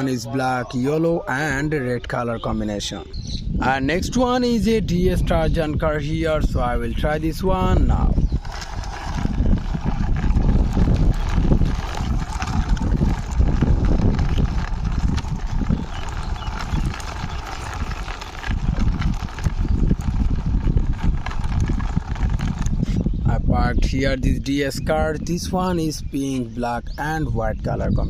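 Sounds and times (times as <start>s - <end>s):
toy car rolling along a wall: 6.4s - 24.0s.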